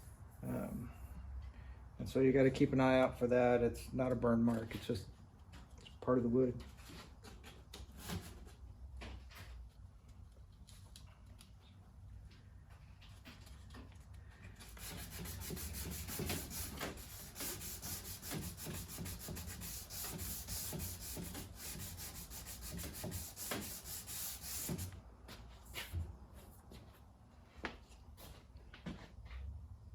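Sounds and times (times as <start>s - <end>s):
sandpaper rasping on wood: 14.6s - 24.9s.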